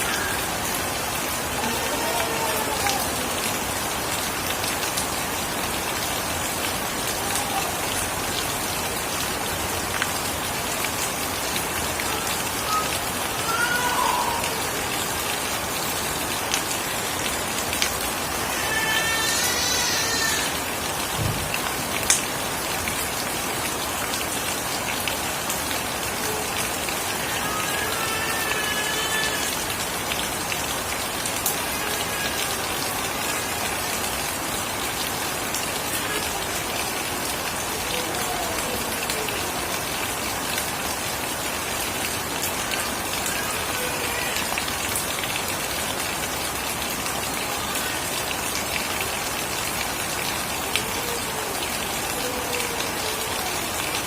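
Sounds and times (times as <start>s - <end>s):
steady rain hiss: 0.0s - 54.0s
raindrops ticking: 21.1s - 22.6s.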